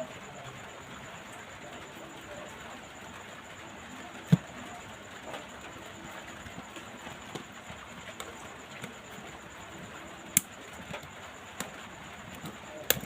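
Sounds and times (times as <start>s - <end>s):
steady background hiss: 0.0s - 13.0s
small tools clicking on plastic parts: 12.3s - 13.0s.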